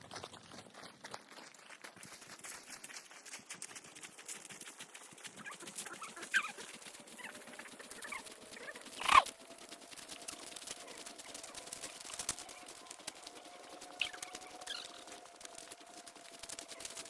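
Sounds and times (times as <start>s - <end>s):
footsteps crunching on trail: 0.0s - 6.1s
short animal call: 9.0s - 9.2s.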